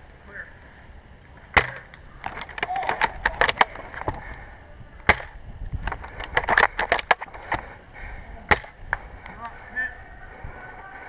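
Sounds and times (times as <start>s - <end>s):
sharp cracks and snaps: 1.5s - 4.4s, 5.0s - 7.6s.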